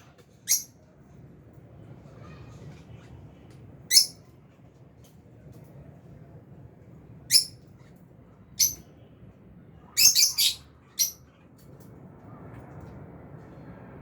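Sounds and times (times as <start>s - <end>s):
lovebirds chirping: 8.6s - 8.8s, 9.9s - 11.2s.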